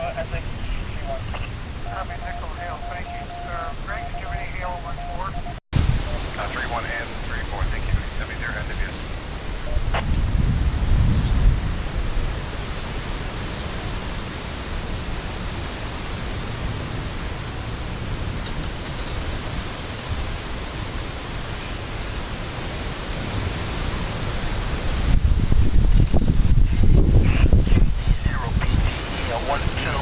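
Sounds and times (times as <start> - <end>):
heavy rain: 0.0 - 30.0
wind gusting on microphone: 0.0 - 30.0.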